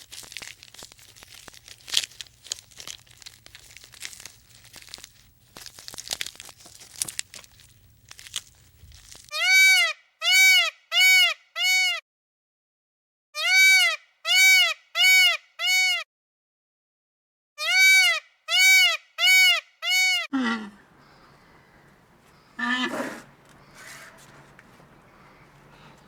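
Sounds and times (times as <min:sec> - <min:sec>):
animal calls rising and falling: 0:20.4 - 0:26.0.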